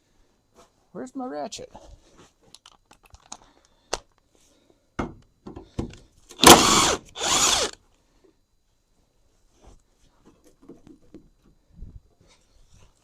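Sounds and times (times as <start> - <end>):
handheld power tool bursts: 6.3 - 7.8.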